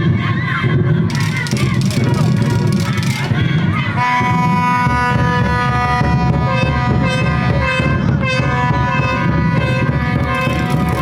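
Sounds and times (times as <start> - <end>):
horn long steady note: 4.0 - 11.0.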